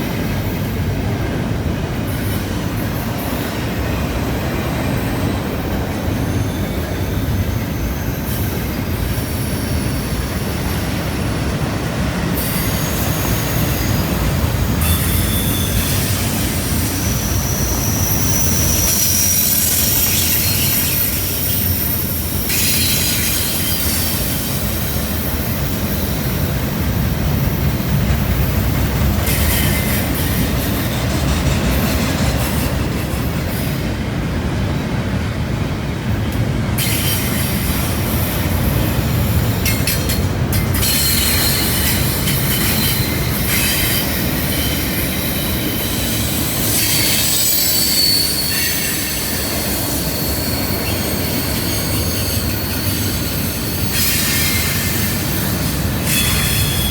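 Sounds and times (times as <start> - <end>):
train wheels rumbling on rails: 0.0 - 56.9
high-pitched wheel squeal: 6.1 - 11.3, 14.8 - 24.9, 39.2 - 56.9.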